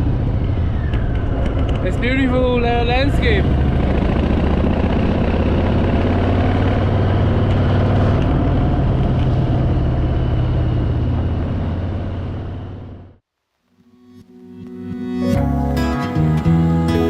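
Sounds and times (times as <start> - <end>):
motorcycle engine running: 0.0 - 13.2
wind and road noise: 0.0 - 13.3.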